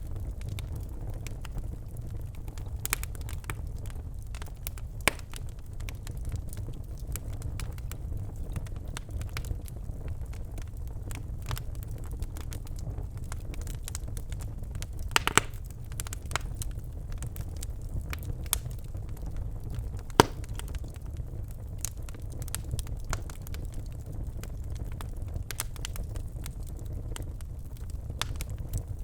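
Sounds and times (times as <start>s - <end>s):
fire crackling and popping: 0.0s - 29.0s
low rumble of flames: 0.0s - 29.0s.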